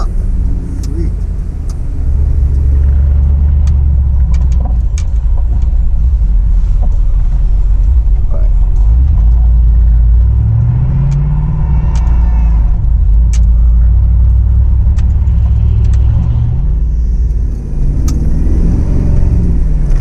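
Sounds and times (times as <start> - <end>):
truck engine rumbling: 0.0 - 20.0
sharp clicks: 14.8 - 16.3.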